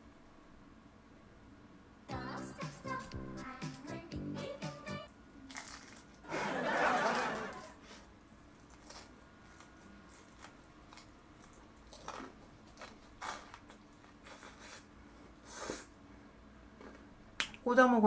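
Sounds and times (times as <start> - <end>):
close-mouthed chewing: 8.5 - 14.9.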